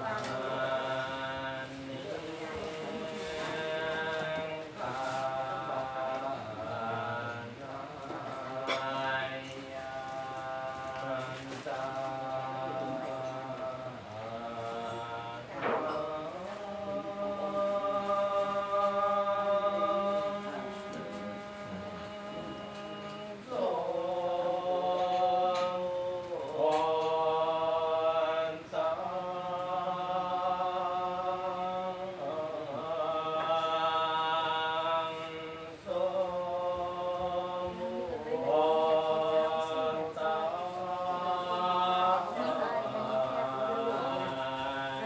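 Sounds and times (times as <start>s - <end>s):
chanting: 0.0s - 45.0s.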